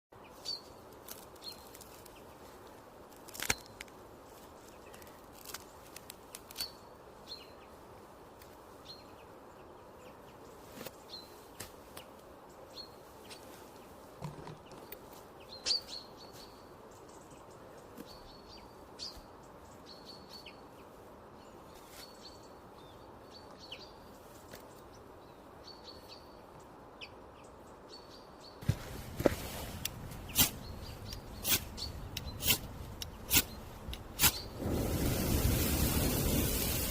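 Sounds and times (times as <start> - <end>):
faint outdoor hiss: 0.1 - 36.9
small bird chirping: 14.5 - 25.0, 30.2 - 34.6.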